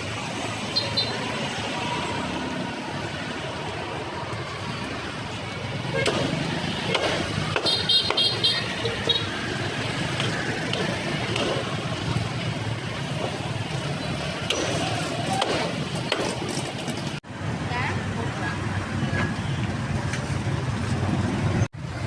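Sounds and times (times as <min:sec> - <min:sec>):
road traffic passing: 0:00.0 - 0:22.0
people talking: 0:17.6 - 0:19.4.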